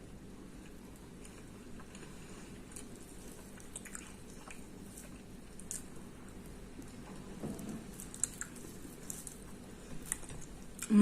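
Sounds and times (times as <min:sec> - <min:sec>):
low steady hum: 0:00.0 - 0:11.0
person chewing food: 0:00.0 - 0:11.0.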